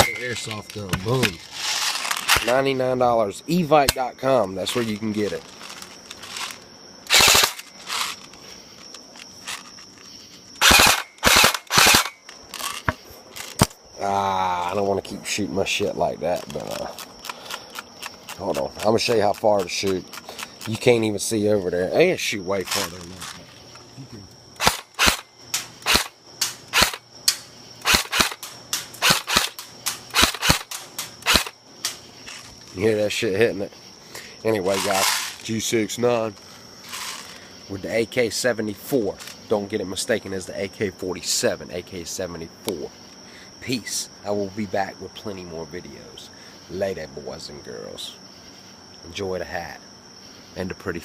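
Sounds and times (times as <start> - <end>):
airsoft rifle firing bursts: 7.1 - 7.6, 10.6 - 12.1, 27.8 - 28.4, 29.0 - 31.5.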